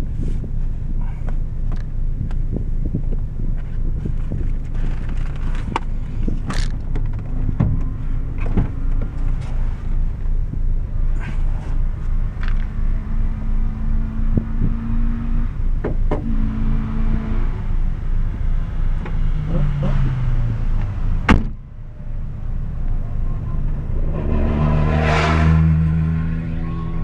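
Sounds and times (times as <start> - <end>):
car engine idling: 0.0 - 14.9, 15.5 - 27.0
loud thump: 21.2 - 21.6, 23.7 - 26.5
rushing noise: 22.0 - 27.0.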